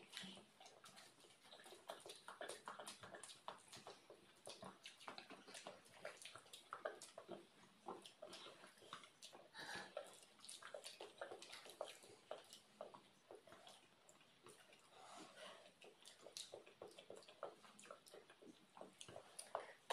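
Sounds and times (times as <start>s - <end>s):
chewing and wet mouth noises: 0.0s - 19.9s.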